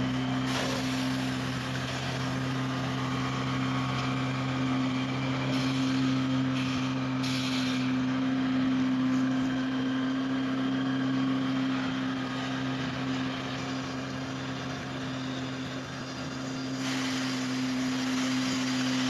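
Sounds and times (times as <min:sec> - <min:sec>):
machine hiss: 0:00.4 - 0:02.3, 0:05.5 - 0:07.9, 0:16.7 - 0:19.0.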